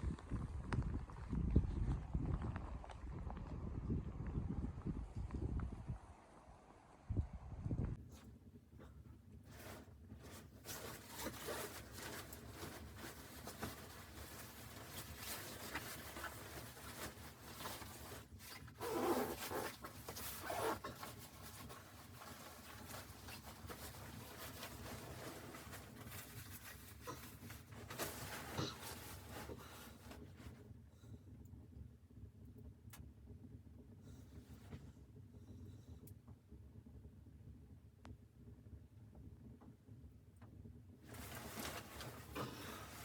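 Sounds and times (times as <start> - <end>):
rustling and scraping: 8.0 - 30.7, 41.0 - 43.0.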